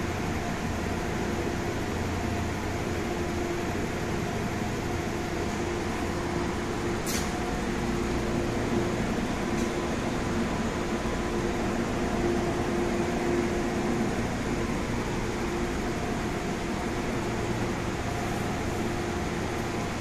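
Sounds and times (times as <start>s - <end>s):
train equipment humming: 0.0s - 20.0s
short sharp click: 7.0s - 7.3s.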